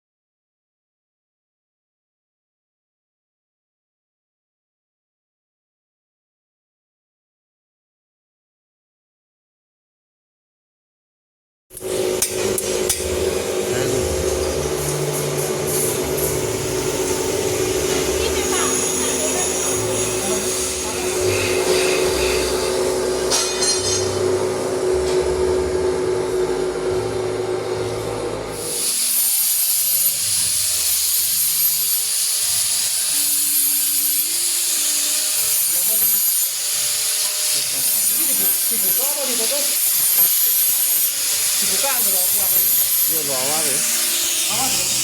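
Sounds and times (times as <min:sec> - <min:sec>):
machine humming: 0:11.8 - 0:28.7, 0:43.7 - 0:45.0
high-pitched hiss of steam: 0:13.7 - 0:23.6, 0:28.6 - 0:34.2, 0:35.6 - 0:45.0.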